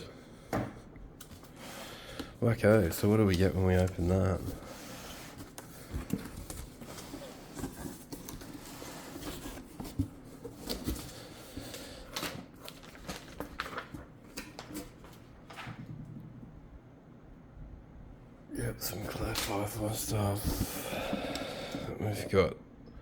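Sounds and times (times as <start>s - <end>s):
packing material rustling and scraping: 2.9s - 15.8s.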